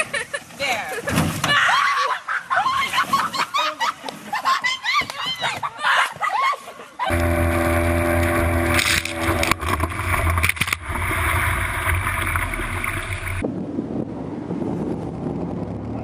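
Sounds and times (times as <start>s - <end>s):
wind: 0.0s - 16.0s
boat engine noise: 7.1s - 13.4s
rushing water: 7.1s - 13.4s.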